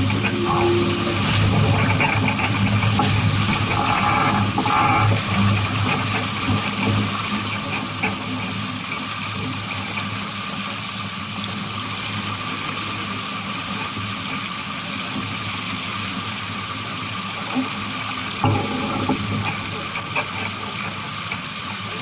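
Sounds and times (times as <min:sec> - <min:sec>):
low steady hum: 0:00.0 - 0:06.9
water rushing along boat hull: 0:00.0 - 0:22.0.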